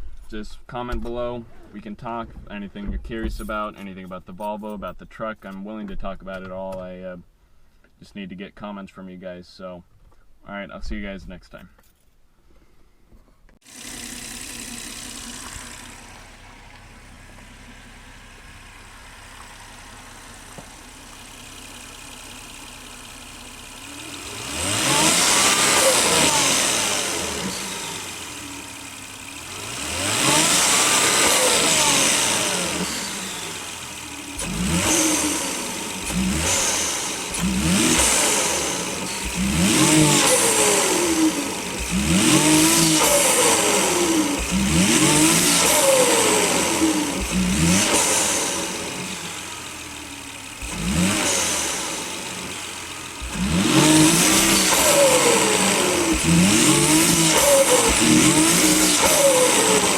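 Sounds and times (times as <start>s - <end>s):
turbocharged car engine revving: 13.6s - 59.9s.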